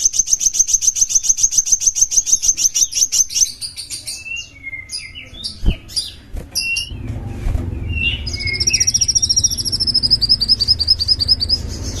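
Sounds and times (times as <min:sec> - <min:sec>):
fast bird trill: 0:00.0 - 0:07.0, 0:07.8 - 0:12.0
songbird singing: 0:00.0 - 0:12.0
low rumble: 0:06.8 - 0:12.0.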